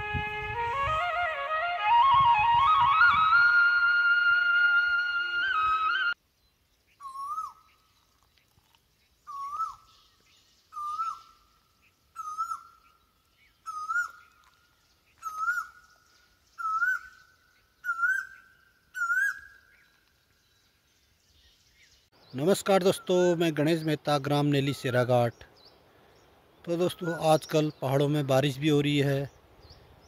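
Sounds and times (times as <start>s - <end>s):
bird whistling: 7.0s - 7.7s, 9.3s - 10.0s, 10.7s - 11.3s, 12.2s - 12.8s, 13.6s - 14.4s, 15.2s - 15.9s, 16.6s - 19.9s.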